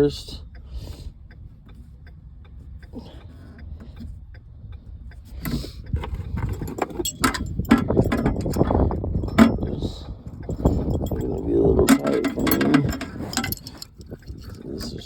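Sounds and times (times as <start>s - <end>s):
low steady rumble: 0.0s - 15.0s
hand tools clinking on metal: 6.0s - 15.0s.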